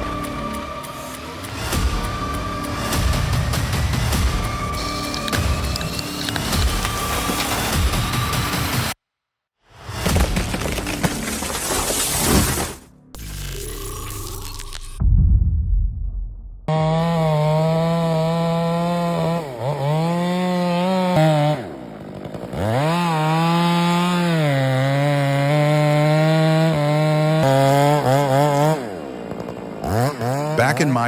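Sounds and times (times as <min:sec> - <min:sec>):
chainsaw cutting wood: 0:00.0 - 0:09.0, 0:10.0 - 0:12.7, 0:16.7 - 0:31.0
heavy low thud: 0:15.0 - 0:16.7.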